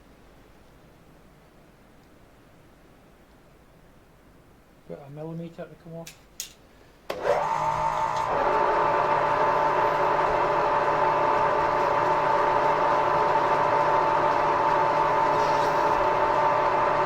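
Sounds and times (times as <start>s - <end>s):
metal lathe whining: 7.2s - 17.0s.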